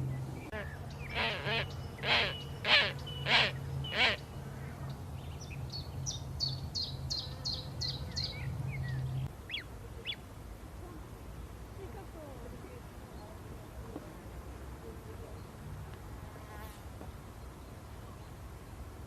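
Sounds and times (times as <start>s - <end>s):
harsh bird calls: 0.4s - 10.2s.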